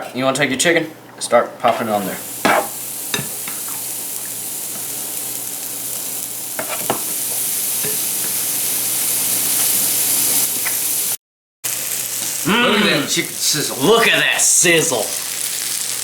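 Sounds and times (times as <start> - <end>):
chicken sizzling in hot oil: 1.9 - 16.0.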